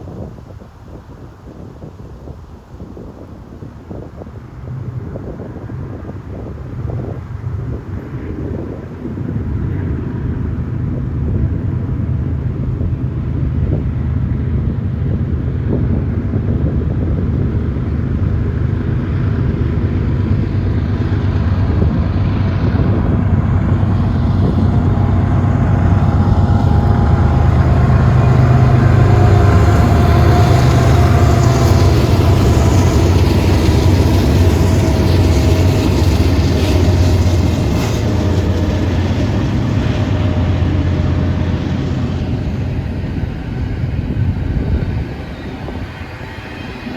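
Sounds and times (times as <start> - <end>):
diesel locomotive engine drone: 0.0 - 46.9
train wheels rolling: 17.2 - 46.9.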